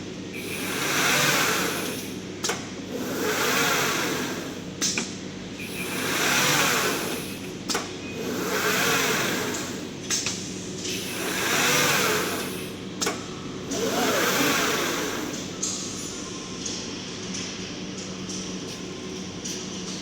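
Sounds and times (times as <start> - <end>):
cutting machine whirring: 0.4 - 2.1, 2.9 - 4.7, 5.6 - 7.4, 8.2 - 9.9, 11.1 - 12.7, 13.7 - 15.6.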